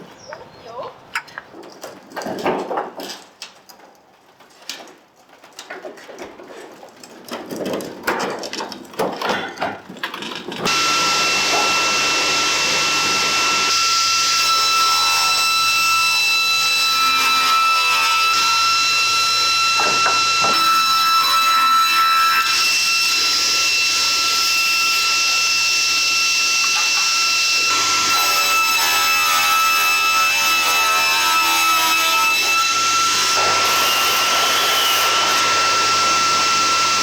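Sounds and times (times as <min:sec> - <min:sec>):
workshop handling clicks and knocks: 0:04.4 - 0:10.7
power tool whining: 0:10.7 - 0:15.9, 0:22.4 - 0:28.6, 0:32.7 - 0:37.0.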